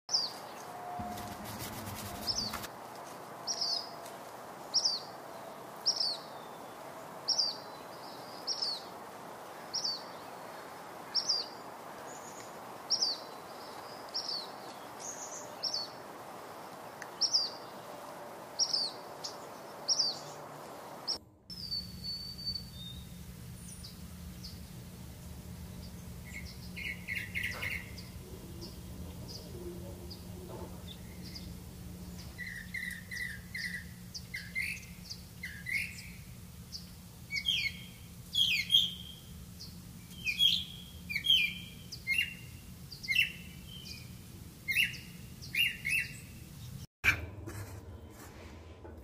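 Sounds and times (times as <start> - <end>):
bird chirping: 0.1 - 2.7, 11.1 - 44.1
low hum: 0.5 - 2.7, 17.9 - 35.3, 47.0 - 49.0
background hiss: 0.9 - 46.9.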